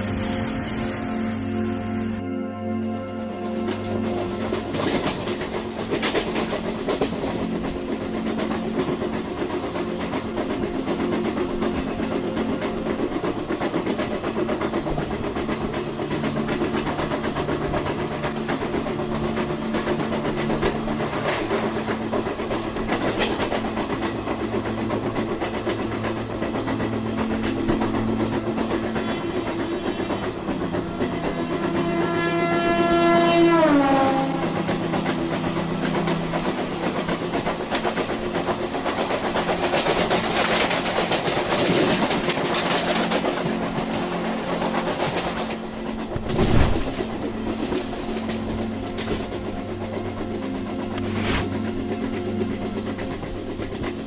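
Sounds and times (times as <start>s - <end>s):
train running on rails: 0.0s - 54.0s
track knocks: 3.4s - 54.0s
train horn: 27.1s - 36.9s.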